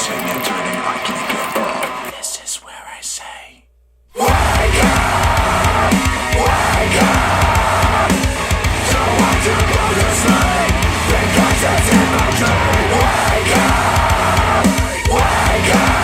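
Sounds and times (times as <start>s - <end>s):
heavy rock music: 4.2s - 16.0s.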